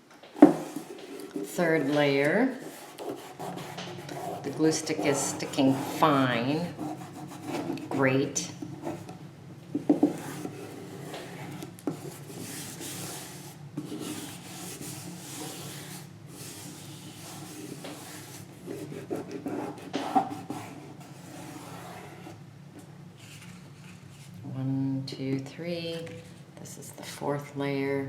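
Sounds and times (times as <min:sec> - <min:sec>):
paper rubbing and rustling: 0:00.4 - 0:08.0, 0:23.2 - 0:24.4.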